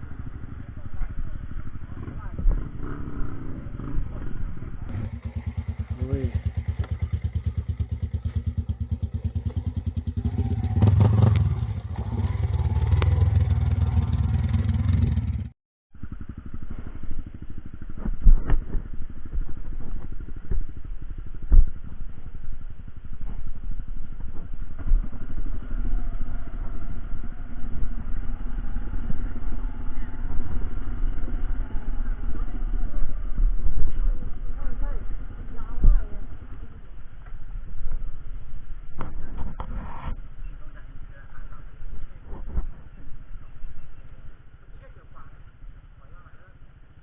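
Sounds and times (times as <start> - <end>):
dull rumble: 0.0 - 47.0
vehicle engine running: 0.0 - 47.0.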